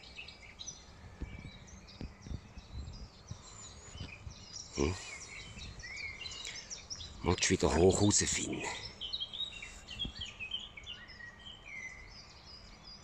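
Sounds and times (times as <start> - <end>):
small birds chirping: 0.0 - 13.0
low thumps and rustles: 1.0 - 4.7.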